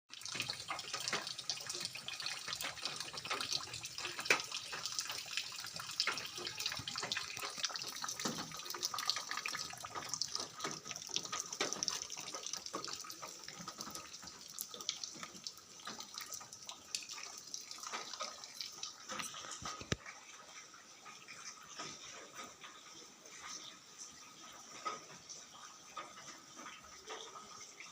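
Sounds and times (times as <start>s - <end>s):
rain patter: 0.1s - 27.9s.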